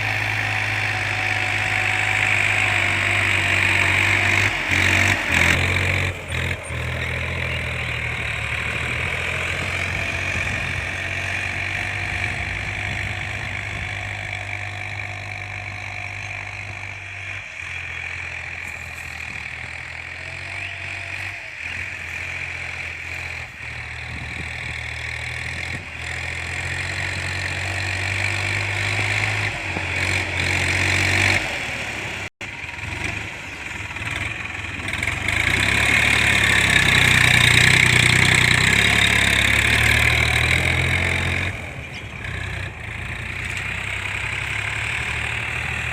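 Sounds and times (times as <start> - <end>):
tractor diesel engine idling: 0.0 - 26.6.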